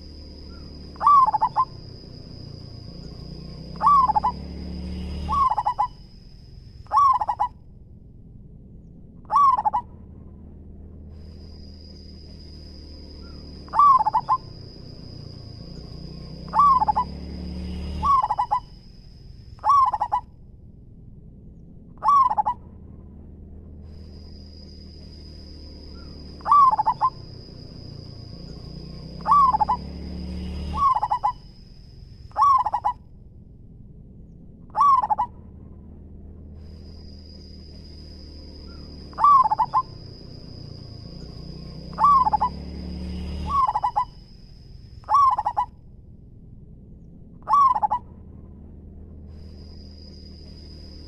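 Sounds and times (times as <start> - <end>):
steady high-pitched whine: 0.0 - 51.0
dove cooing: 0.5 - 1.8, 3.8 - 4.5, 5.2 - 6.0, 6.9 - 7.5, 9.3 - 9.8, 13.2 - 14.6, 16.4 - 17.2, 17.9 - 18.7, 19.6 - 20.2, 22.0 - 22.6, 26.0 - 27.9, 29.2 - 29.9, 30.7 - 31.4, 32.3 - 33.0, 34.7 - 35.3, 38.7 - 40.2, 41.9 - 42.6, 43.5 - 44.2, 45.1 - 45.7, 47.4 - 48.0.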